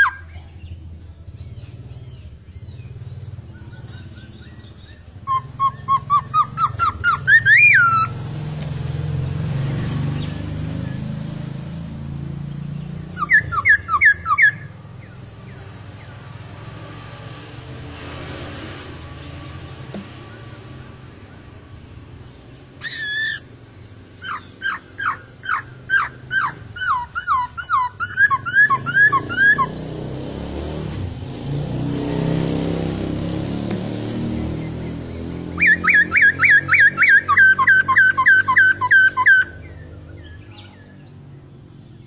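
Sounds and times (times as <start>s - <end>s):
bird whistled notes: 0.0s - 0.3s, 3.6s - 8.2s, 13.0s - 14.8s, 22.8s - 23.5s, 24.2s - 29.8s, 35.6s - 40.7s
bird harsh call: 0.0s - 0.8s, 1.5s - 8.3s, 13.0s - 15.1s, 19.9s - 29.9s, 34.6s - 40.9s.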